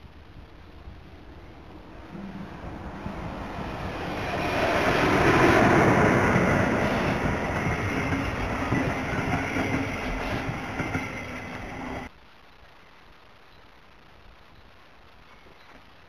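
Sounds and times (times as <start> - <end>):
passenger train passing: 0.6 - 12.1.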